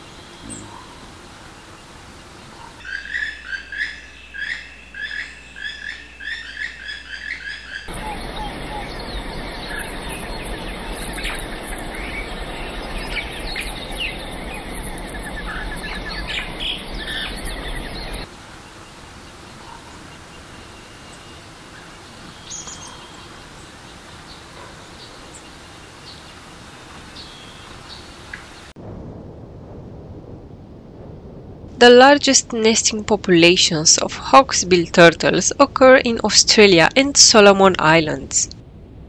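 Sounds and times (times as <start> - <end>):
birds chirping: 0.0 - 28.7
dense insect hum: 0.0 - 29.3
low rushing noise: 7.9 - 19.1.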